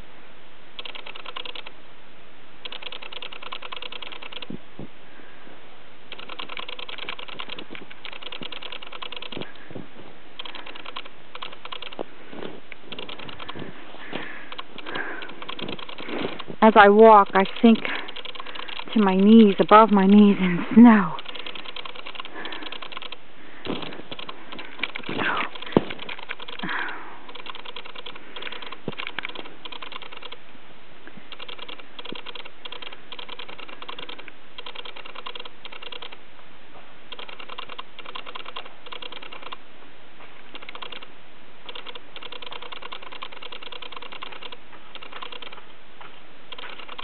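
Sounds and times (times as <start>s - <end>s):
footsteps crunching through snow: 9.4s - 10.3s, 12.0s - 12.9s.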